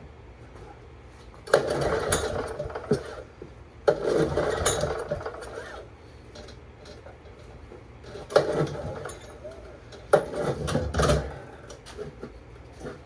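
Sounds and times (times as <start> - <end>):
engine rattling turn-over: 1.4 - 7.5
recoil starter yank: 1.4 - 13.0.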